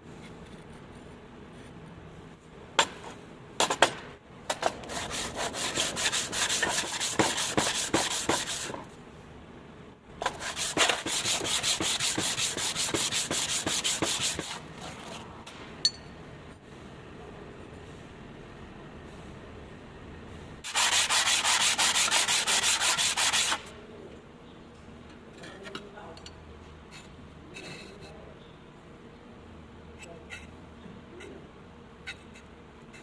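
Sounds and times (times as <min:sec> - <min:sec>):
hand tool rubbing on wood: 0:04.9 - 0:08.7, 0:10.2 - 0:15.2, 0:20.7 - 0:23.6.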